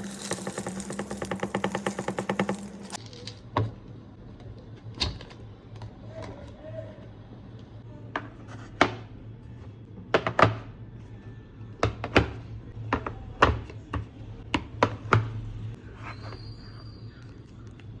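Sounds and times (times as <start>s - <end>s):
containers clacking and knocking: 0.0s - 3.0s.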